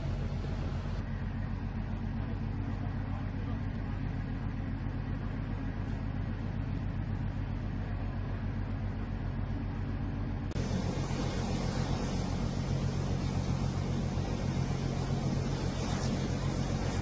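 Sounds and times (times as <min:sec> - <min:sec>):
engine drone with low hum: 0:00.0 - 0:17.0
bright machine noise: 0:10.6 - 0:17.0.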